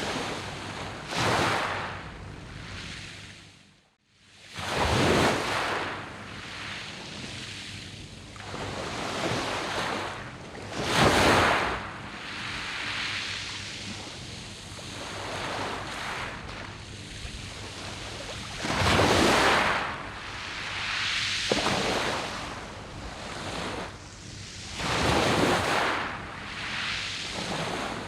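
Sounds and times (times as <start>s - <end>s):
waves breaking on pebble beach: 0.0s - 1.9s, 8.6s - 14.1s, 14.9s - 23.9s, 24.6s - 28.0s.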